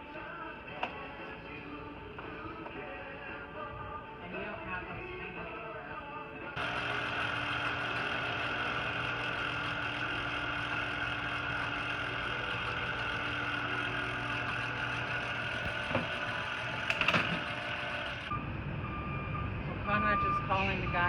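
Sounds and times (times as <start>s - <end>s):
motor humming: 6.6s - 18.4s.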